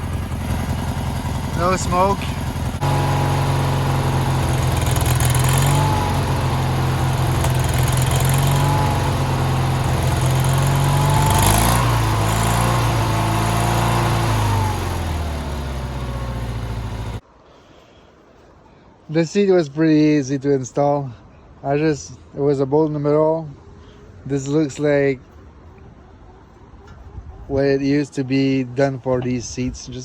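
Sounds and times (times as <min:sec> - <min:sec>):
garden tractor engine running: 0:00.0 - 0:17.2.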